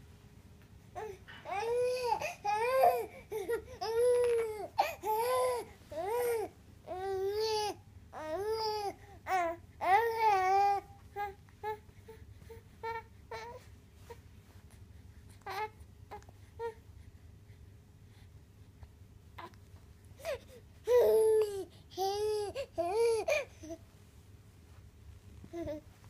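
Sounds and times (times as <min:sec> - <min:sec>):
newborn baby crying: 0:01.0 - 0:11.8.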